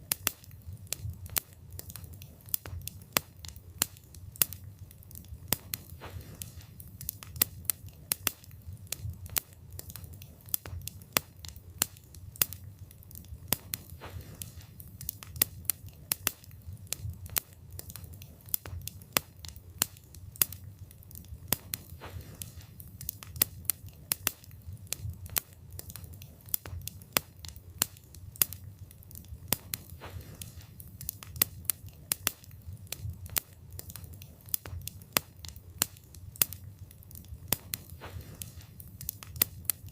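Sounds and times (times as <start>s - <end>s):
low rumble of flames: 0.0s - 39.9s
wood crackling and popping: 0.0s - 39.9s.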